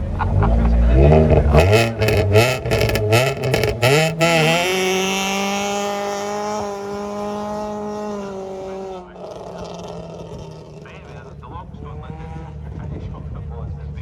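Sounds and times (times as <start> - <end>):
rally car engine revving: 0.0 - 14.0
sharp exhaust cracks: 0.5 - 12.6.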